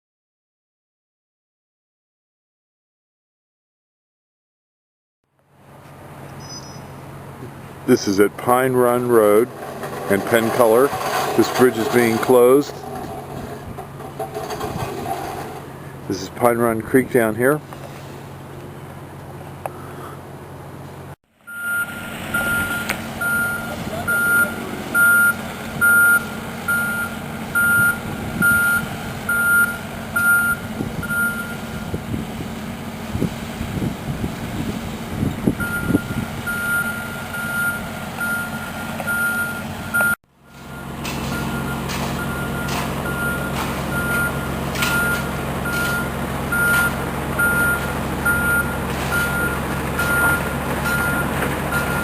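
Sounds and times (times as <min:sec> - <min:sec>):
heavy vehicle engine running: 0:05.4 - 0:52.0
vehicle backup alarm beeping: 0:21.4 - 0:32.0, 0:35.3 - 0:52.0.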